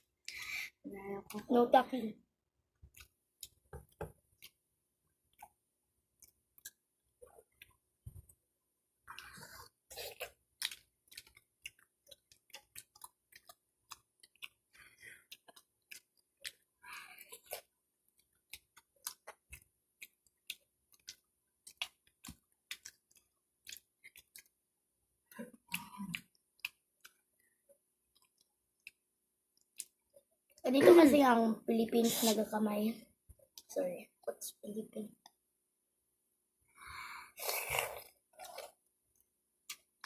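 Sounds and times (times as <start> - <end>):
chewing with lip smacks: 9.0 - 24.6, 25.3 - 30.6.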